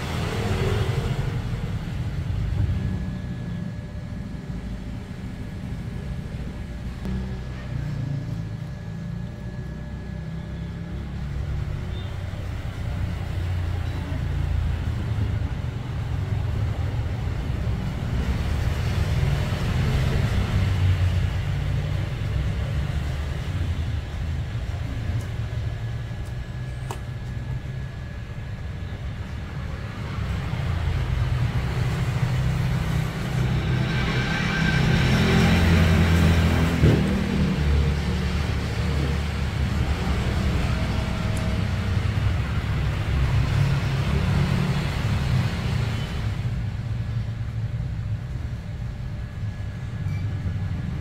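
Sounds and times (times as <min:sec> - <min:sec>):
faint high whine: 0:00.0 - 0:36.3.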